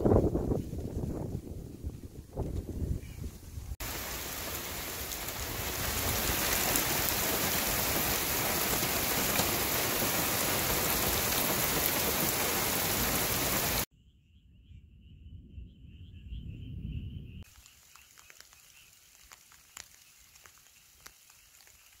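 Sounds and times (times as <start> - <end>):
heavy rain hissing: 3.8 - 13.9, 17.5 - 22.0
faint high chirping: 13.9 - 22.0.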